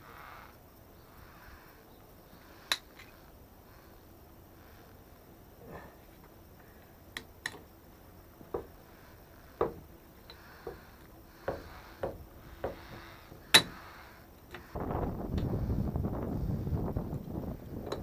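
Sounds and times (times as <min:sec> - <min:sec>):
hard objects knocking: 0:08.4 - 0:08.8, 0:09.6 - 0:13.8.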